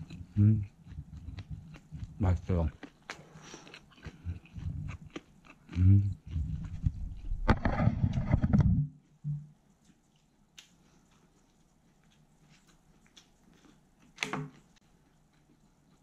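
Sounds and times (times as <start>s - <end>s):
person humming: 0.0s - 1.6s, 5.7s - 6.6s
wet chewing: 0.0s - 7.5s, 9.8s - 16.0s.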